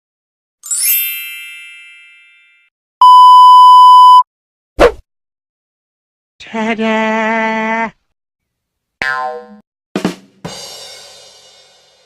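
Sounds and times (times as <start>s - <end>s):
censor bleep tone: 3.0s - 4.3s.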